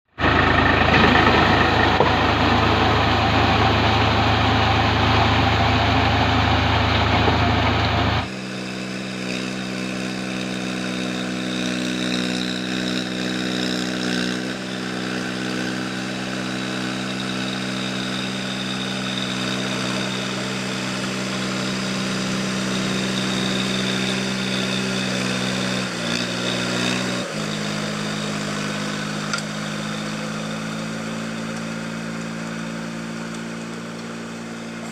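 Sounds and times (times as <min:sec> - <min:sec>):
tractor diesel engine running: 0:00.0 - 0:34.9
quiet engine drone: 0:00.1 - 0:13.5.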